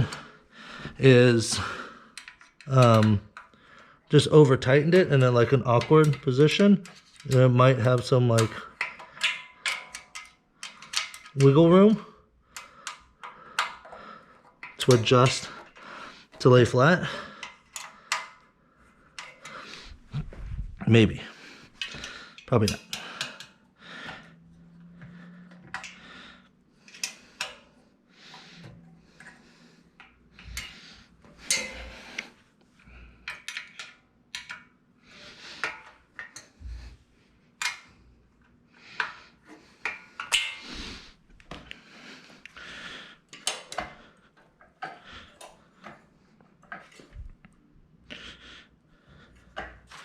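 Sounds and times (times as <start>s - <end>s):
hand tools clinking on metal frame: 4.6s - 12.0s, 21.8s - 23.5s, 28.6s - 32.3s, 39.8s - 40.8s.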